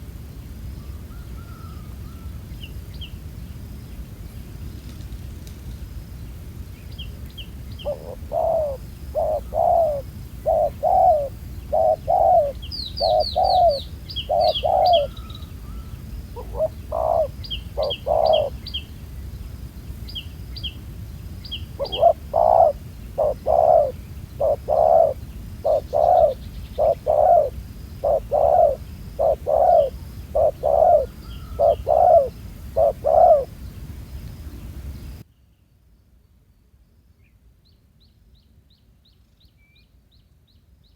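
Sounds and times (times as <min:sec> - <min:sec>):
small bird chirping: 0:06.8 - 0:19.4, 0:21.4 - 0:34.3
doves cooing: 0:07.8 - 0:18.6, 0:21.8 - 0:33.6.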